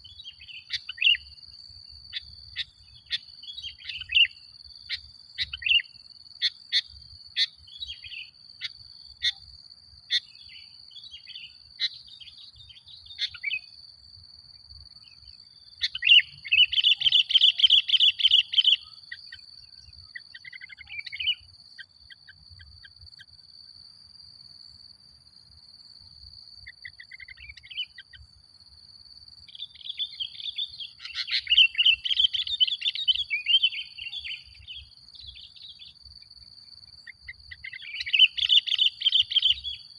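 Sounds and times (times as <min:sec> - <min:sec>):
bird chirps and chattering song: 0:00.0 - 0:01.3, 0:02.1 - 0:09.5, 0:10.1 - 0:13.8, 0:15.0 - 0:23.3, 0:26.6 - 0:28.2, 0:29.4 - 0:36.0, 0:37.0 - 0:39.9.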